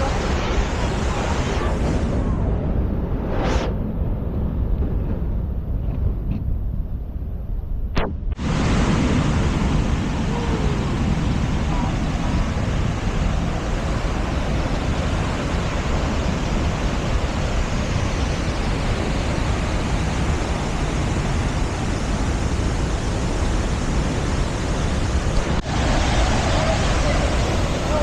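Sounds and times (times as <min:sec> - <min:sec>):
waterfall roaring: 0:00.0 - 0:02.2, 0:08.4 - 0:28.0.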